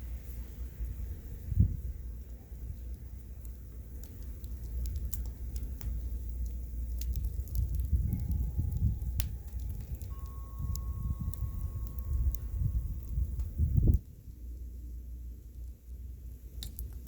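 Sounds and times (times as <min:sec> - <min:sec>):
bonfire crackling and popping: 0:00.0 - 0:17.0
wind rumble on microphone: 0:00.0 - 0:17.0.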